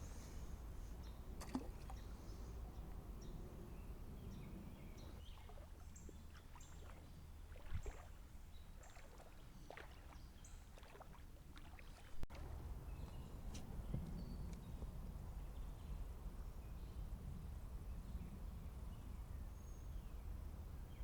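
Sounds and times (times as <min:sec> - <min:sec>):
water splashing and dripping: 0:01.4 - 0:02.0, 0:05.3 - 0:12.5.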